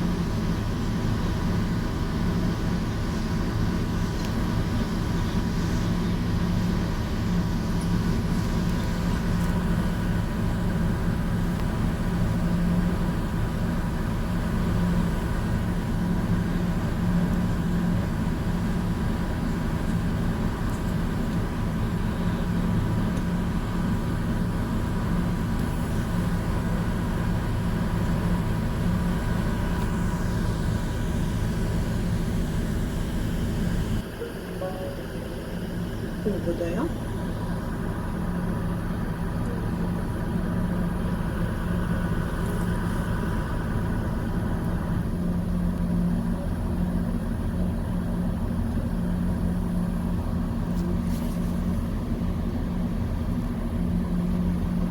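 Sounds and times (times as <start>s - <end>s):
ferry engine droning: 0.0s - 54.9s.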